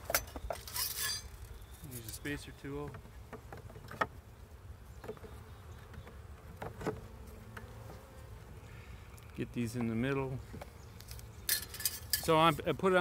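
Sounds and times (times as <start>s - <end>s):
bees buzzing: 5.0s - 9.2s.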